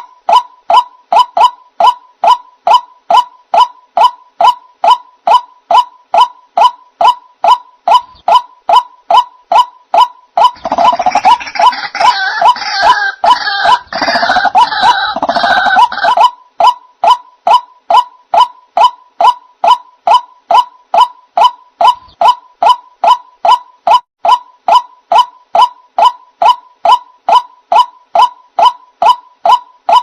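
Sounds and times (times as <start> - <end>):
monotonous repeated bird call: 0.0 - 30.0
harsh croaking bird chorus: 10.4 - 16.3.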